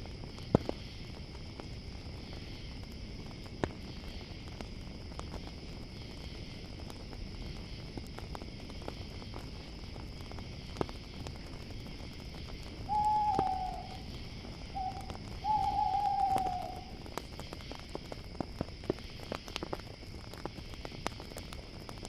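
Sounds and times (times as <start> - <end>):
campfire crackling and popping: 0.0 - 22.0
crickets chirring: 0.0 - 22.0
owl hooting: 12.9 - 17.0.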